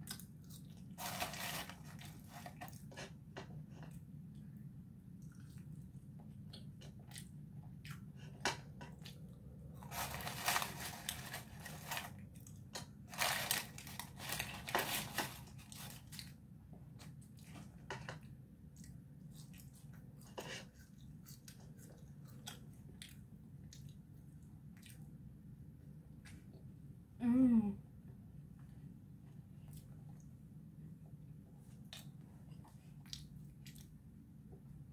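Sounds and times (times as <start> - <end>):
person chewing food: 0.0 - 4.6, 5.2 - 25.3, 31.6 - 34.0
paper wrapper crinkling: 1.0 - 2.7, 9.9 - 12.2, 13.1 - 16.2.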